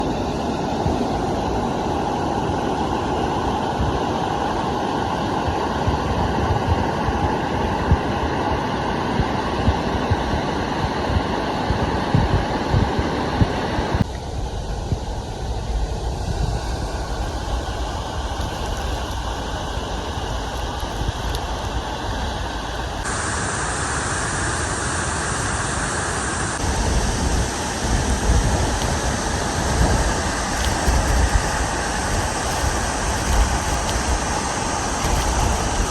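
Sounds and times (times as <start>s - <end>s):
low waterfall rumble: 0.0s - 35.9s
rush of falling water: 15.6s - 35.9s.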